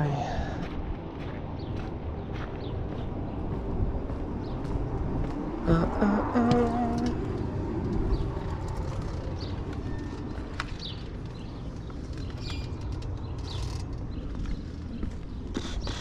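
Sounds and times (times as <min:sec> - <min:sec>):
vehicle engine idling: 0:00.0 - 0:16.0
bird chirps: 0:09.2 - 0:16.0.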